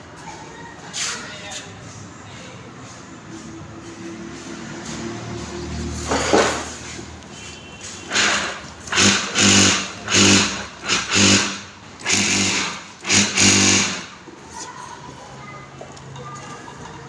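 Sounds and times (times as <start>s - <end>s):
sewing machine stitching: 8.1s - 14.2s.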